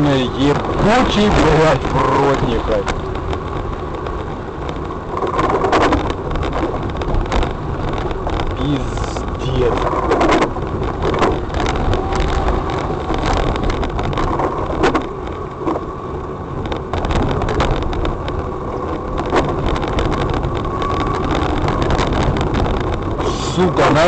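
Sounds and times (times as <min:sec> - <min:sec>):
car engine and tyres rumbling: 0:00.0 - 0:24.0
car knocks and bumps: 0:09.2 - 0:15.9.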